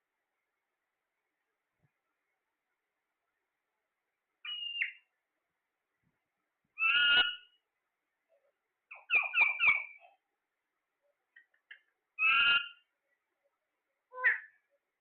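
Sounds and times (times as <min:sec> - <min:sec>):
parrot squawking: 0:06.8 - 0:07.5, 0:12.2 - 0:12.8.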